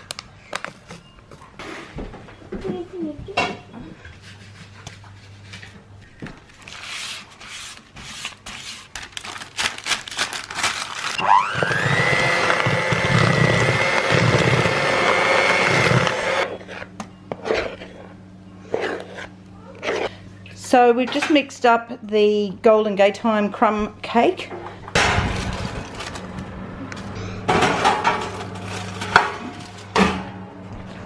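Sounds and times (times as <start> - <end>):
electric mixer whining: 11.1 - 16.6.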